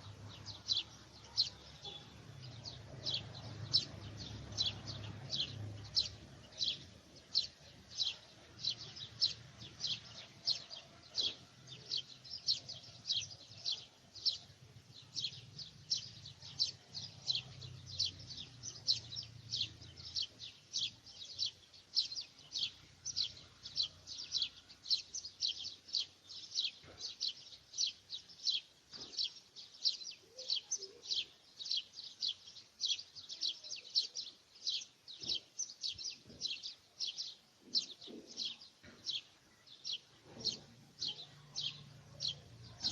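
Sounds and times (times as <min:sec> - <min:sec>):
small bird chirping: 0:00.0 - 0:42.9.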